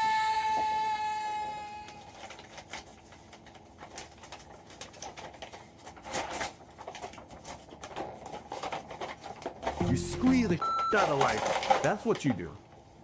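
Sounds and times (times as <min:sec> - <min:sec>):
plastic packaging crinkling: 0:02.2 - 0:12.5.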